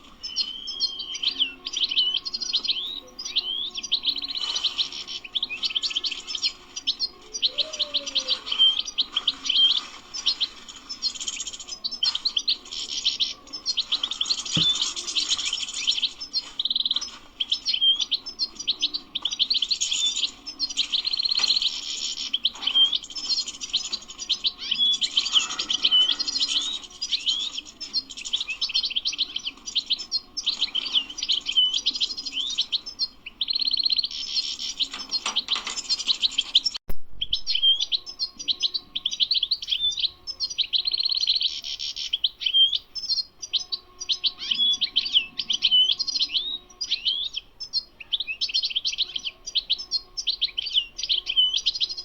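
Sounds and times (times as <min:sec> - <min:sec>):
goldfinch singing: 0:00.0 - 0:52.0.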